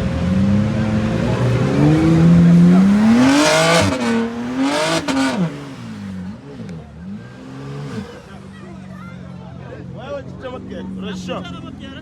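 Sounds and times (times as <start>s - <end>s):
car engine revving: 0.0s - 8.9s.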